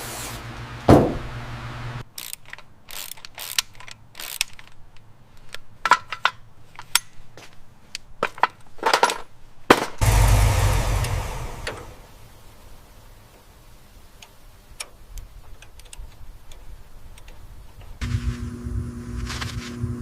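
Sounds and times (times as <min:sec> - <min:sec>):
metallic clicks of hand tools: 0:02.1 - 0:07.2
machine rushing noise: 0:10.0 - 0:12.2.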